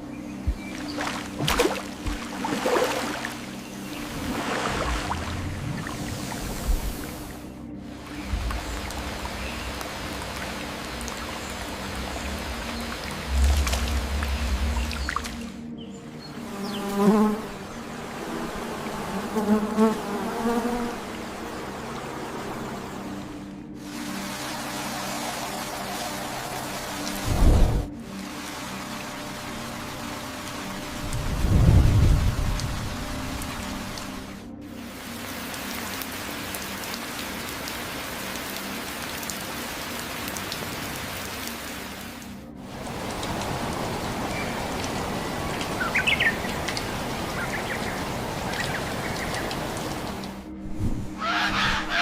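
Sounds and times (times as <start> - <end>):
steady rain: 2.0 - 16.5, 20.9 - 50.6
flying insect buzzing: 16.3 - 23.2.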